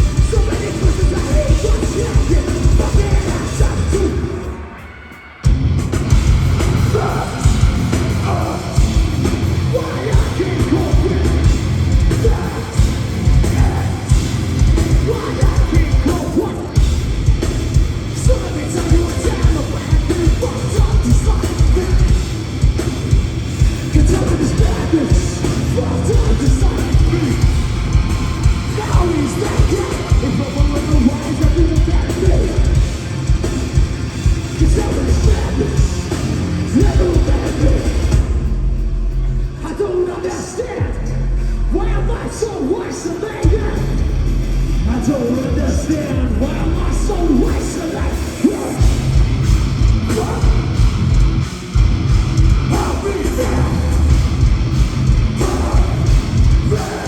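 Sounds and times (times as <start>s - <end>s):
pounding drums: 0.0s - 4.6s, 5.5s - 39.6s, 45.9s - 57.0s
heavy metal band playing live: 0.0s - 57.0s
sung and yelled vocals: 0.0s - 57.0s.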